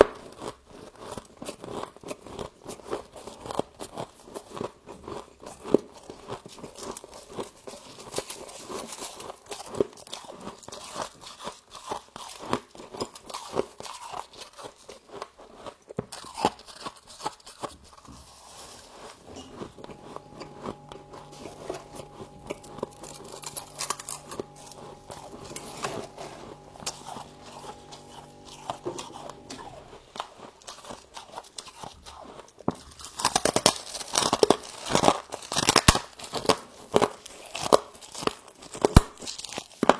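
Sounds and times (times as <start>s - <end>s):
droning hum: 19.4s - 30.0s.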